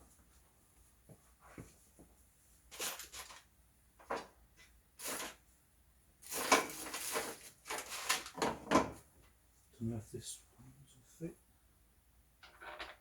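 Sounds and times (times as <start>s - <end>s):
rustling and clatter of parts: 1.1s - 5.4s, 6.2s - 9.1s, 12.4s - 13.0s.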